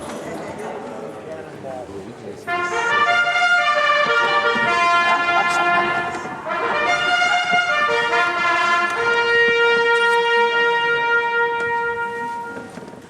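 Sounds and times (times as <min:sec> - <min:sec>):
brass held notes: 0:02.4 - 0:13.0.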